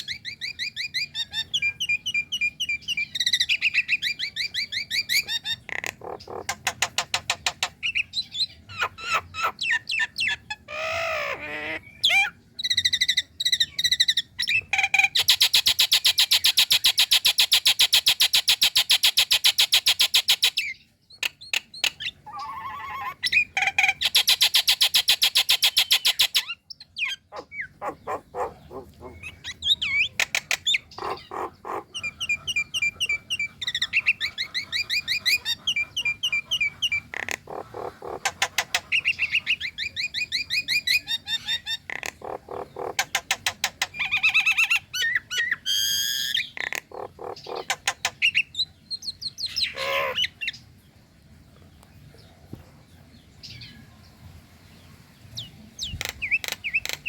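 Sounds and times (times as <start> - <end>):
bird trills and clicks: 3.2 - 8.0, 14.4 - 22.6, 23.2 - 40.8, 41.4 - 50.6, 55.8 - 57.0
myna bird rattling call: 3.3 - 8.1, 14.6 - 48.6, 49.4 - 50.6, 55.8 - 57.0.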